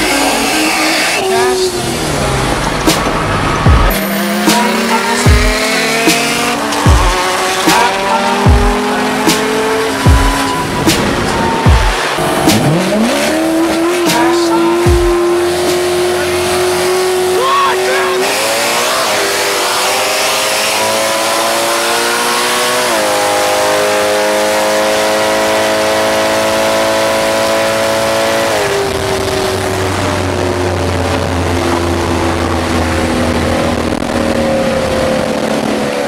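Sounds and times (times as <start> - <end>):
heavy wind rush: 0.0 - 18.3
car engine at full throttle: 0.0 - 36.0.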